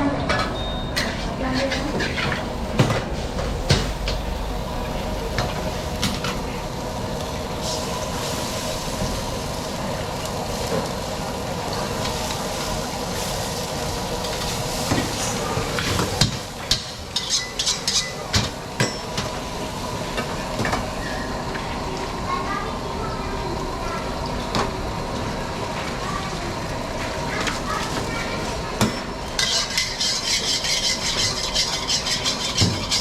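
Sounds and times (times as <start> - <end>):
food sizzling in a wok: 0.5 - 33.0
spatula clanking on wok: 16.2 - 19.4.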